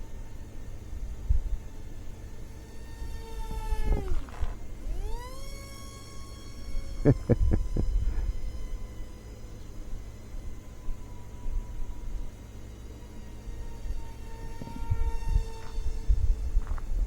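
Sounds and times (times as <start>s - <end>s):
model plane motor whining: 0.0s - 17.0s
wind rumbling on microphone: 13.6s - 17.0s.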